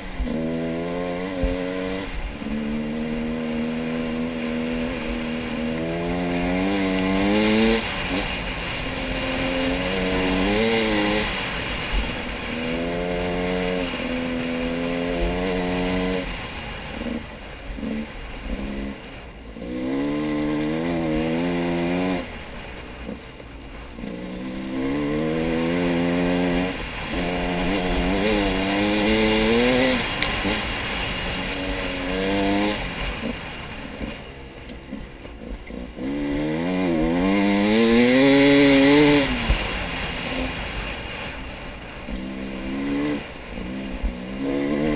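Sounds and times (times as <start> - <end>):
engine revving: 0.0 - 22.4, 24.0 - 41.3, 42.0 - 44.9.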